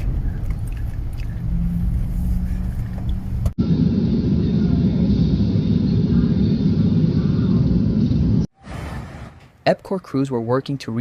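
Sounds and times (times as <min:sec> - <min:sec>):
vehicle rumbling through floodwater: 0:00.0 - 0:03.6.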